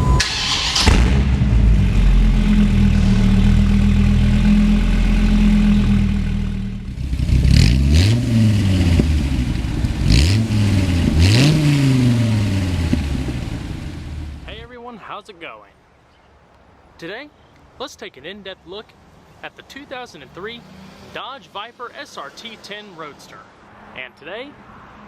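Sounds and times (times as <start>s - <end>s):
car engine revving: 0.0s - 14.6s, 20.2s - 23.1s.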